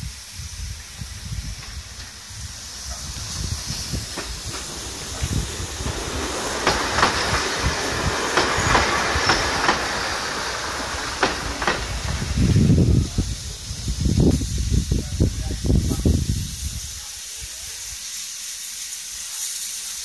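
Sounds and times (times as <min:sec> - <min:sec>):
train hissing rumble: 0:00.0 - 0:20.0
train wheels clicking on rails: 0:00.0 - 0:20.0.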